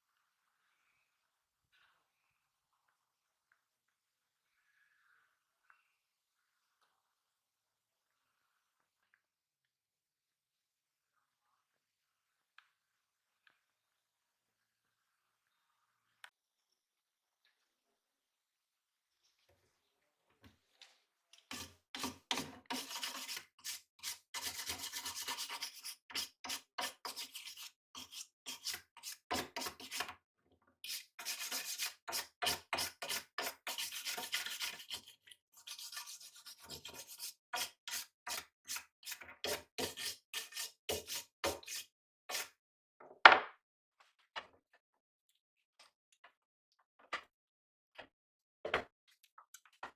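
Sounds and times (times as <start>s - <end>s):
knife blade being scrubbed: 21.5s - 30.1s, 30.8s - 42.5s.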